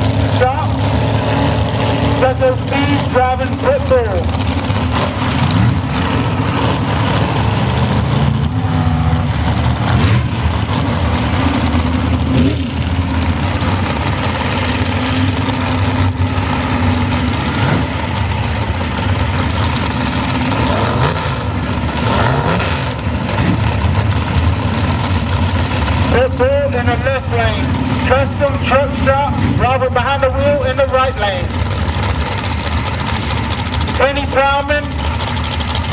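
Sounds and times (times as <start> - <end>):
truck engines idling and revving: 0.0 - 35.9.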